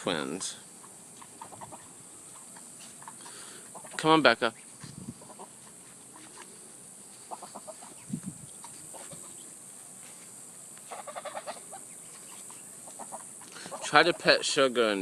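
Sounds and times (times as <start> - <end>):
ducks and geese calling softly: 0.0 - 15.0.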